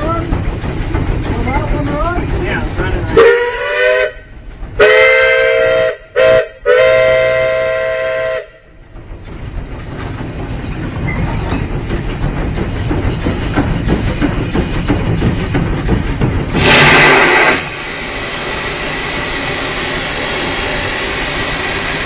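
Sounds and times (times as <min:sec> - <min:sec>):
locomotive running noise: 0:00.0 - 0:22.0
steam locomotive whistle: 0:03.1 - 0:08.7, 0:16.6 - 0:17.9.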